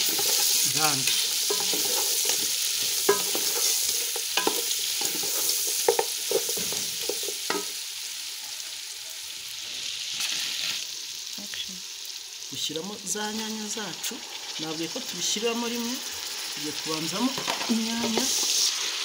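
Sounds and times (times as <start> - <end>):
wooden spoon scraping a pot: 0.0 - 7.6
meat and onions sizzling: 0.0 - 19.0.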